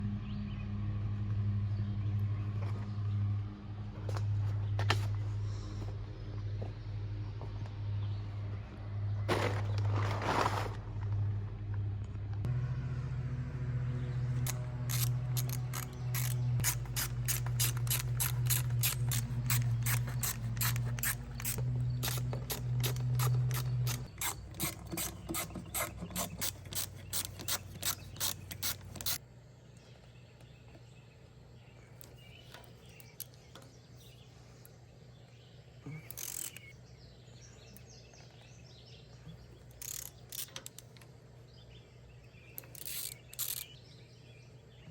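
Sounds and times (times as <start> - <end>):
steady low hum: 0.0 - 44.9
ratchet wrench clicking: 14.4 - 29.2, 36.1 - 36.7, 39.7 - 41.0, 42.6 - 43.8.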